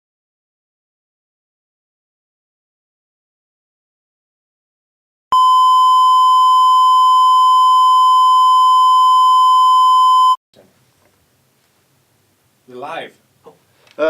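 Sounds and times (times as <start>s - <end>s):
steady test tone beep: 5.3s - 10.4s.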